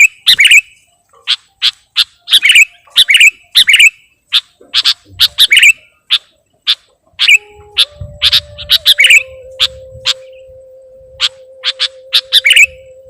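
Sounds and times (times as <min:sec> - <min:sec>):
bird chirping: 0:00.0 - 0:13.0
faint steady hum: 0:07.4 - 0:13.0.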